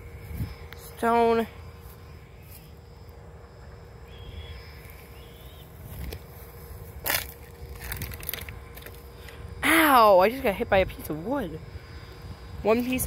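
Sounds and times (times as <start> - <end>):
faint bird calls: 4.1 - 5.8
footsteps crunching on stones: 5.8 - 9.1.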